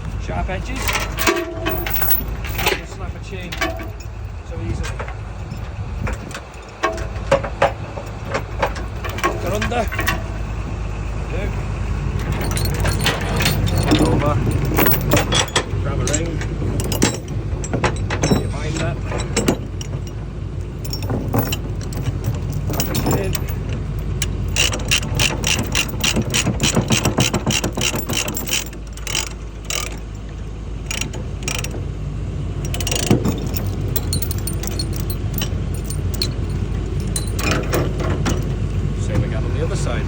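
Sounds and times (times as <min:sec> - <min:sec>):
engine running: 0:00.0 - 0:40.0
chains clanking: 0:00.6 - 0:10.6, 0:12.1 - 0:31.8, 0:32.5 - 0:38.8
ratchet binder clicking: 0:24.2 - 0:30.1, 0:32.6 - 0:38.4.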